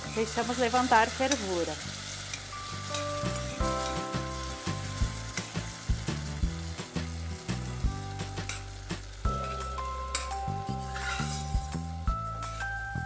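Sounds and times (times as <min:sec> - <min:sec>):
sauce sizzling in a pot: 0:00.0 - 0:13.0
metal spoon clinking on pot: 0:09.4 - 0:11.5.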